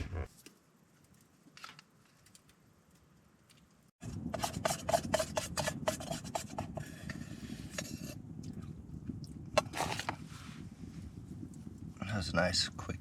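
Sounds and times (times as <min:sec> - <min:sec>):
spoon scraping a bowl: 0:04.3 - 0:08.2, 0:09.6 - 0:10.2.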